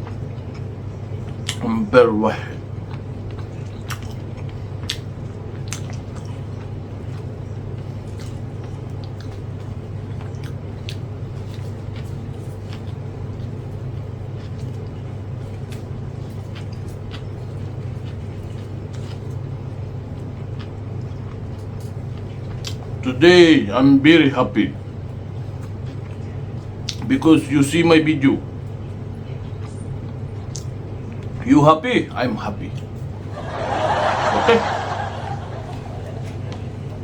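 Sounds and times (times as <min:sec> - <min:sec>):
person chewing food: 0:00.0 - 0:01.6, 0:02.6 - 0:23.0, 0:24.9 - 0:27.1, 0:35.6 - 0:37.0
steady low hum: 0:00.0 - 0:37.0.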